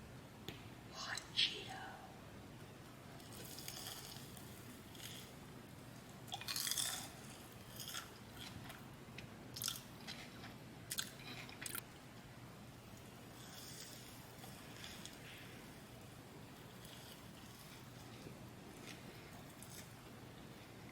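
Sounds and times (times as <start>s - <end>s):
person chewing crisp food: 3.2s - 5.4s, 6.3s - 8.6s, 9.6s - 11.8s, 13.4s - 15.3s, 16.6s - 18.2s.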